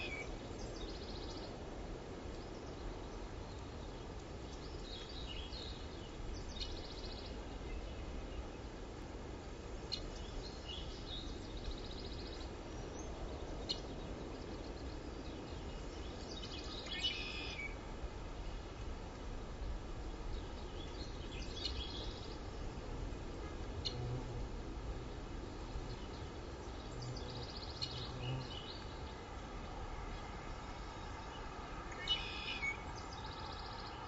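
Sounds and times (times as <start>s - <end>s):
low outdoor background noise: 0.0s - 34.0s
birds chirping: 30.1s - 34.0s.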